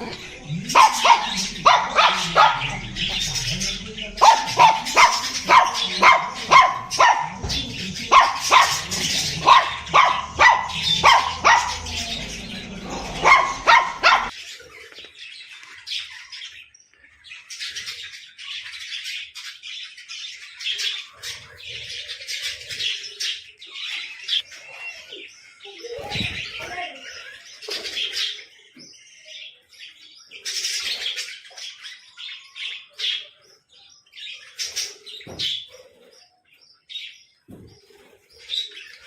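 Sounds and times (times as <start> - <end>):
loud sharp pitched calls: 0.0 - 14.4
small birds chirping: 0.0 - 39.0.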